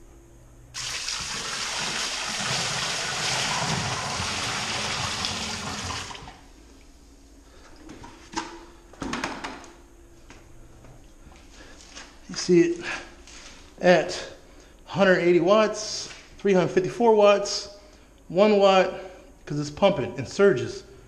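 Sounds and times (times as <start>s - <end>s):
water pouring and splashing: 0.8s - 6.4s.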